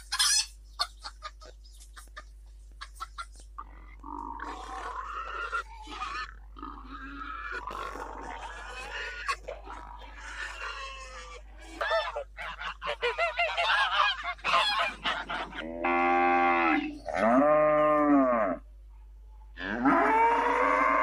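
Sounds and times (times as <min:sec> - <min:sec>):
cows mooing: 0:14.9 - 0:18.6, 0:19.6 - 0:21.0.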